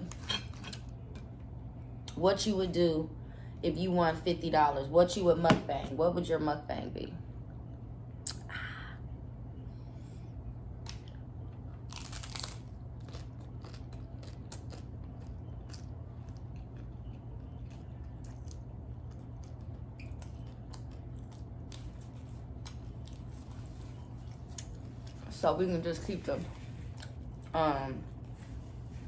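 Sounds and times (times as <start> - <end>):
steady low hum: 0.0 - 29.0
crunchy tacos being chewed: 10.7 - 25.4, 26.5 - 29.0.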